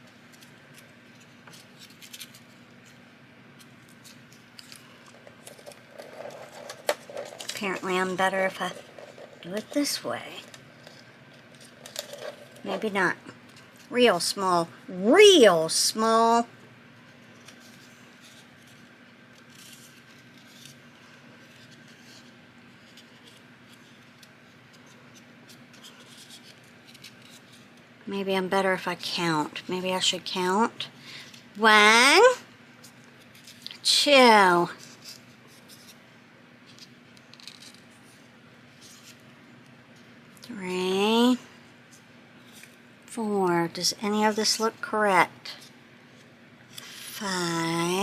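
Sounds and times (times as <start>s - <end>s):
low room hum: 0.0s - 48.0s
paper crinkling and creasing: 0.1s - 3.0s, 3.6s - 13.9s, 17.0s - 27.9s, 36.6s - 39.3s.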